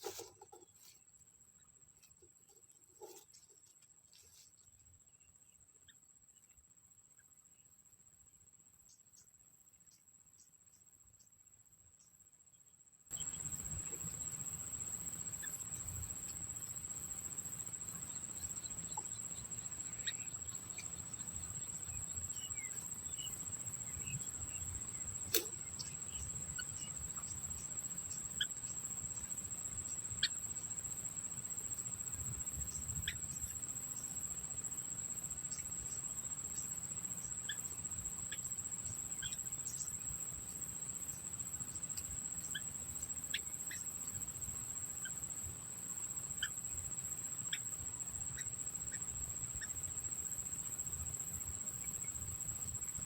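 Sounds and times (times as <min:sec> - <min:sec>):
high-pitched insect trill: 0:08.6 - 0:53.0
faint bird chirps: 0:12.0 - 0:45.3, 0:45.9 - 0:50.2
sharp clicks: 0:25.3 - 0:25.6.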